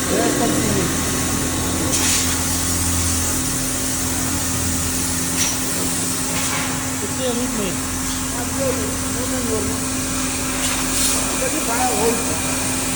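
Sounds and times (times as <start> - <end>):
lathe machine hum: 0.0 - 10.6
sharp hisses: 0.6 - 3.4.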